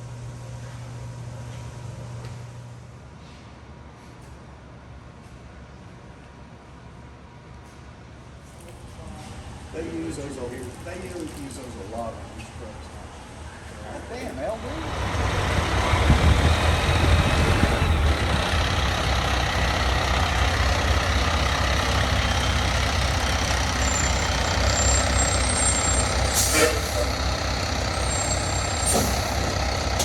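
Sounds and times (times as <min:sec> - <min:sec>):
diesel engine droning: 0:11.0 - 0:30.0
air hisses: 0:26.3 - 0:27.2, 0:28.2 - 0:30.0.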